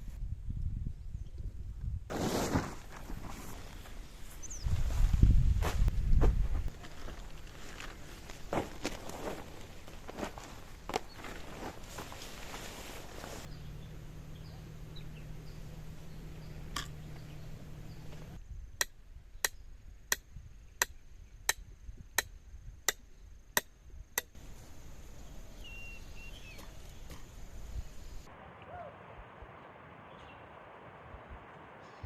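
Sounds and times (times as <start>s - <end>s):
steady low hum: 13.5s - 18.5s.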